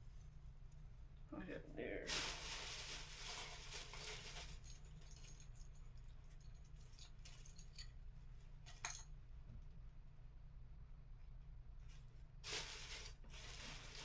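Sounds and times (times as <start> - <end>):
decorations rustling and clicking: 2.1 - 8.0.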